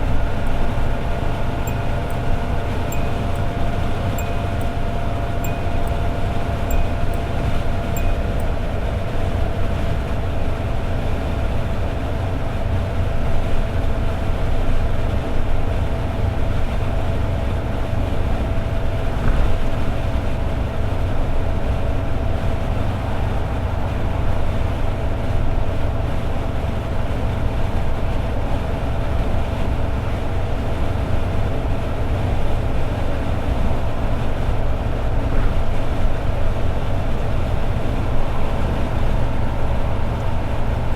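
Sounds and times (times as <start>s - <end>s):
thin steady hum: 0.0s - 9.0s
car engine cruising: 0.0s - 11.2s, 17.8s - 40.9s
tyre and road noise: 29.7s - 40.9s.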